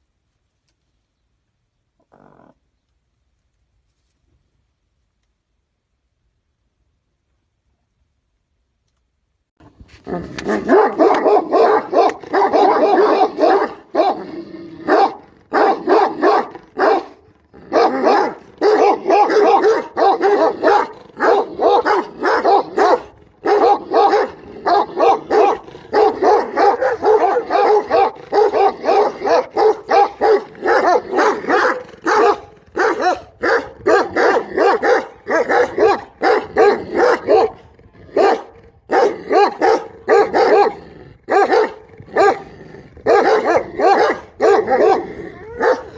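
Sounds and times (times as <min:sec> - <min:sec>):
dog barking: 0:10.5 - 0:42.5, 0:43.1 - 0:45.9.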